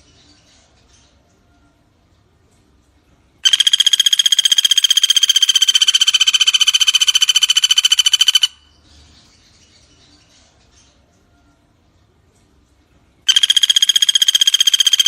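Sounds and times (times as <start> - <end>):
woodpecker rattling trill: 3.4 - 8.7, 13.3 - 15.0.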